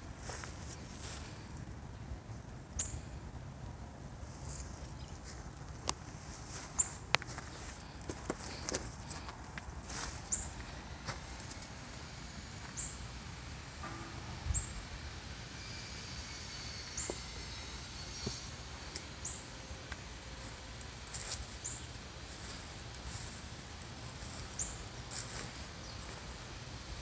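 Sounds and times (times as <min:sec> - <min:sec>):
small bird chirping: 0:10.0 - 0:10.6.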